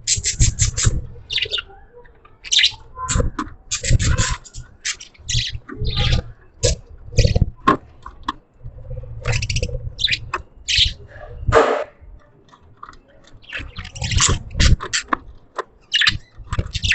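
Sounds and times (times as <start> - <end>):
budgerigars chirping: 0.1 - 1.8, 2.4 - 7.5, 9.2 - 11.8, 13.3 - 15.2, 15.8 - 16.9.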